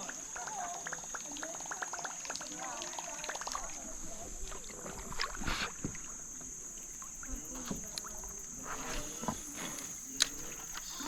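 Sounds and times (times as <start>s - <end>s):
high-pitched insect chorus: 0.0s - 11.0s
knocks and taps from kayak: 4.9s - 6.5s, 7.2s - 8.3s.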